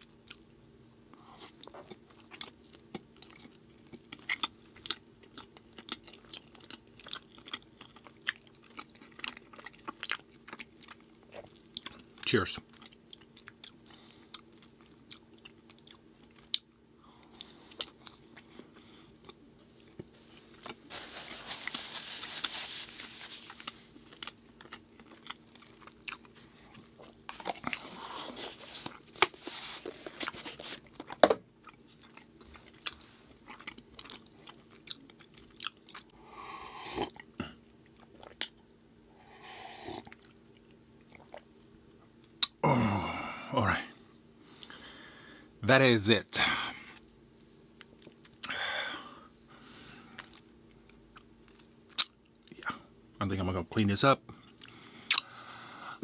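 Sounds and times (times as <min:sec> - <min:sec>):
chewing and crunching food: 0:00.0 - 0:42.6, 0:47.8 - 0:48.6, 0:49.6 - 0:52.9, 0:54.3 - 0:55.6
faint steady hum: 0:00.0 - 0:56.0
mouth clicks and smacks: 0:55.0 - 0:55.3.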